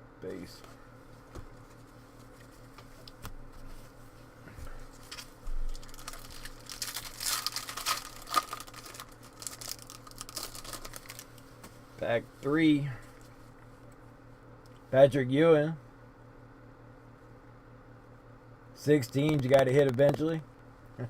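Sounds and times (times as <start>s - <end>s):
wrapper crinkling and tearing: 5.1s - 11.4s.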